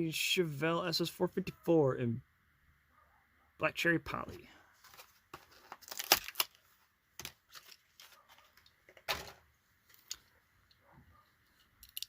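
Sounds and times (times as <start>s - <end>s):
plastic blister pack crackling: 5.5s - 6.6s.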